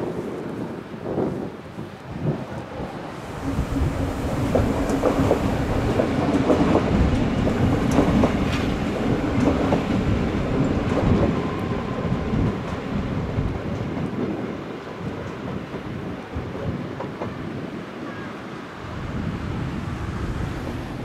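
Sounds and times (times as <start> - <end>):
train drive drone: 2.8 - 14.3, 18.7 - 21.0
train wheels clicking over joints: 3.3 - 14.2.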